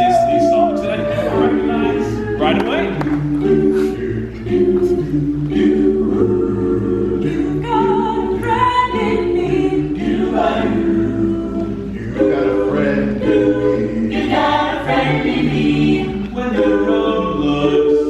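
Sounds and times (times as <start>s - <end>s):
a cappella ensemble singing: 0.0s - 18.0s.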